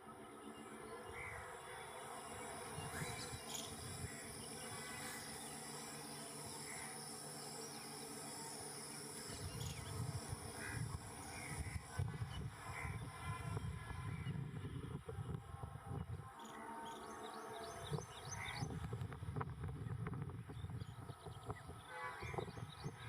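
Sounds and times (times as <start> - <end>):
crickets droning: 0.0 - 23.0
short insect chirps: 2.5 - 13.3.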